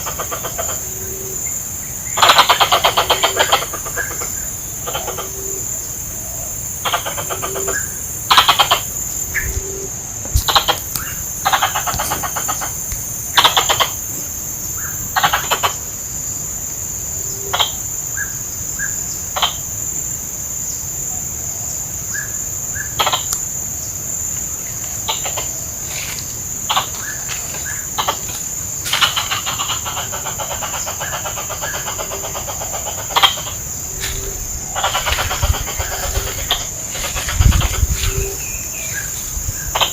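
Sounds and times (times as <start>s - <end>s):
squirrel chattering: 2.2s - 5.5s, 6.8s - 9.6s, 10.3s - 14.1s, 22.8s - 23.6s, 26.6s - 38.4s, 39.6s - 39.9s.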